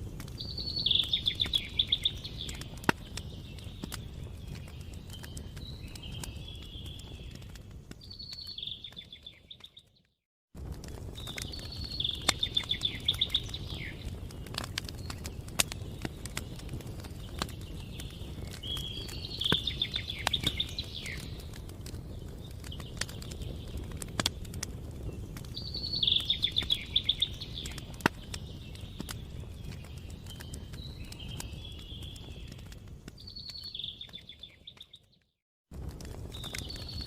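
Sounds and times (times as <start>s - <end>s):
campfire crackling and popping: 0.0s - 10.0s, 10.6s - 37.0s
songbird trilling: 11.6s - 14.0s, 25.6s - 27.8s.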